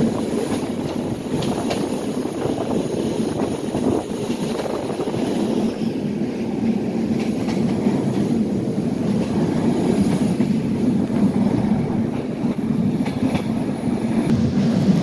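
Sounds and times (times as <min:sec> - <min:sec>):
train wheels rumbling on rails: 0:00.0 - 0:15.0
faint rail clicks: 0:06.6 - 0:08.4, 0:09.1 - 0:13.6.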